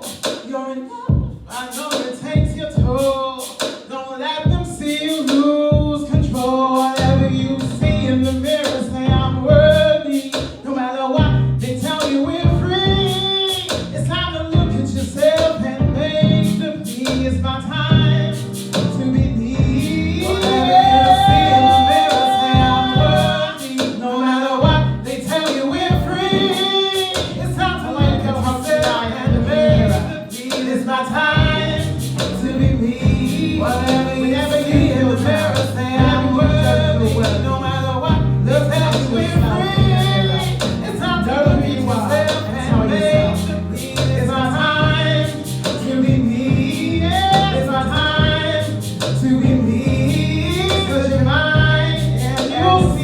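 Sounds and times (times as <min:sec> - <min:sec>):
backing music with bass and beat: 0:00.0 - 0:00.5, 0:01.1 - 0:53.0
woman singing: 0:20.2 - 0:23.5, 0:32.6 - 0:36.8, 0:39.1 - 0:40.7.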